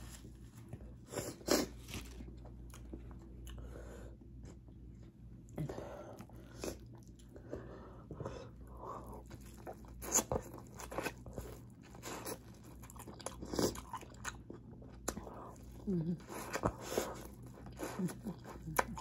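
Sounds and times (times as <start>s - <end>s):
chewing and mouth noises: 9.0s - 19.0s.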